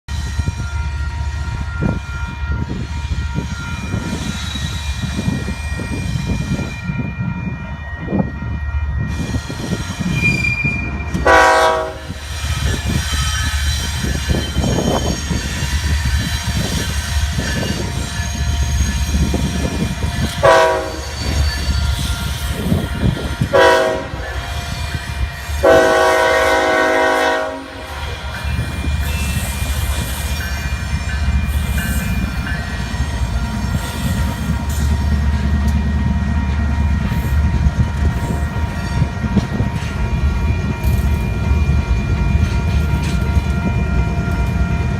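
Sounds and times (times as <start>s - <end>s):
freight train rumbling: 0.0s - 44.9s
train air horn blasts: 11.2s - 12.2s, 20.2s - 21.4s, 23.1s - 28.1s.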